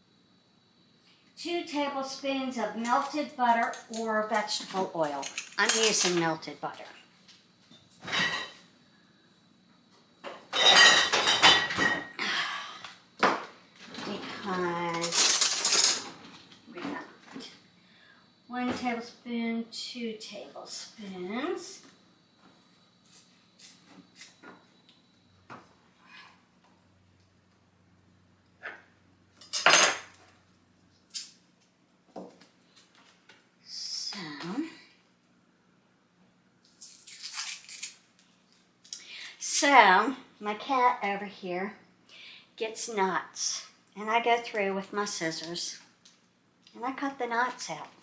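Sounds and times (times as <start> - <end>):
utensils and dishes clinking: 5.1 - 6.3, 15.0 - 16.2
dishes clattering and scraping: 8.0 - 8.6, 10.3 - 12.1, 15.0 - 16.4, 28.6 - 30.2.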